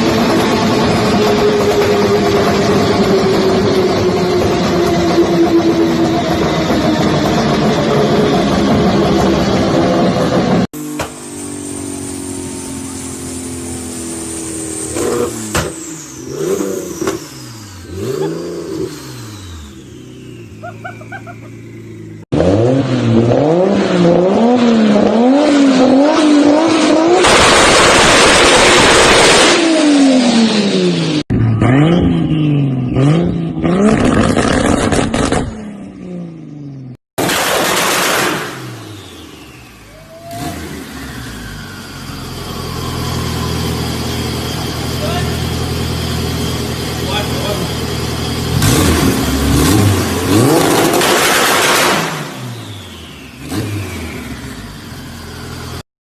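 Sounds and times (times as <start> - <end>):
car engines revving: 0.0 - 55.8
exhaust pops and crackles: 27.2 - 29.6, 33.9 - 35.5, 37.2 - 38.6, 50.6 - 52.4
loud burst of noise: 27.2 - 29.9, 37.2 - 42.0, 50.5 - 54.6.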